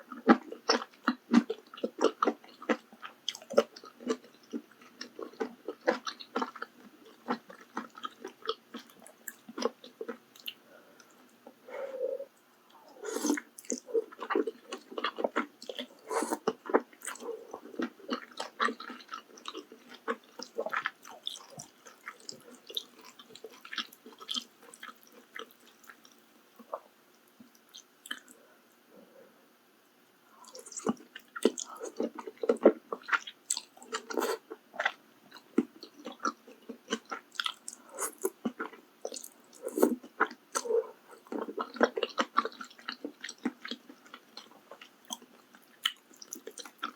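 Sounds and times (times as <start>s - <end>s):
wet chewing and biting: 13.2s - 26.8s
soft food crunches: 13.2s - 28.4s, 30.4s - 46.9s.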